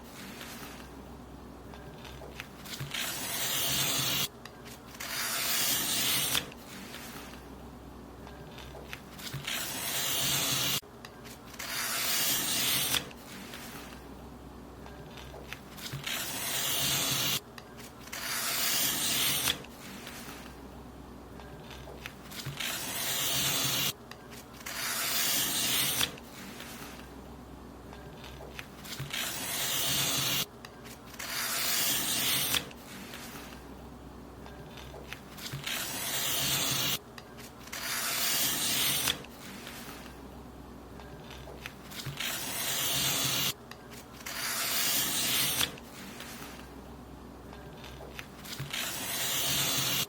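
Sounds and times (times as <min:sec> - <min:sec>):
paper being cut: 0:02.0 - 0:07.4, 0:08.6 - 0:10.8, 0:11.5 - 0:14.0, 0:15.2 - 0:17.4, 0:18.0 - 0:20.5, 0:21.6 - 0:24.0, 0:24.6 - 0:27.0, 0:28.2 - 0:30.5, 0:31.1 - 0:33.6, 0:34.7 - 0:37.0, 0:37.6 - 0:40.2, 0:41.2 - 0:46.6, 0:47.8 - 0:50.0.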